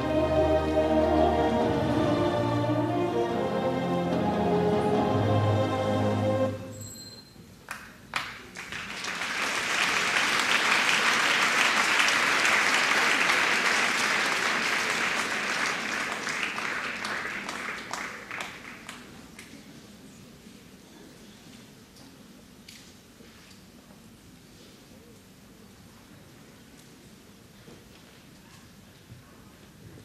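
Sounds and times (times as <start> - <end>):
audience applauding: 7.7 - 19.2.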